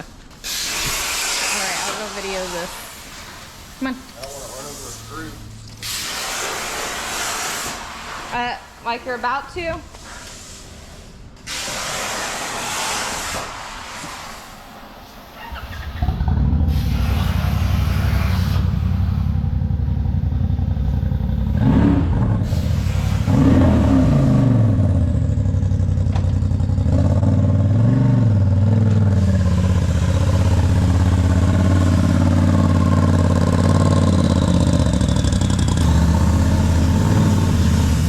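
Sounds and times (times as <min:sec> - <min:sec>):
vehicle engine starting and revving: 0:15.5 - 0:38.0.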